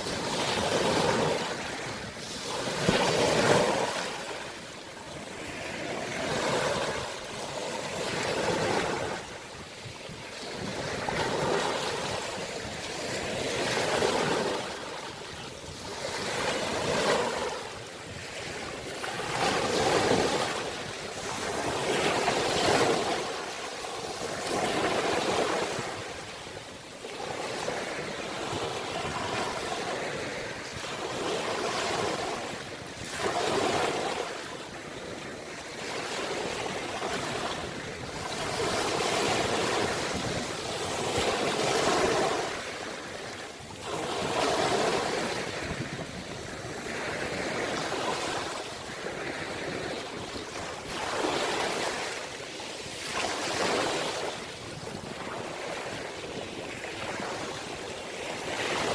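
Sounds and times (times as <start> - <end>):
ocean waves breaking on shore: 0.0 - 58.9.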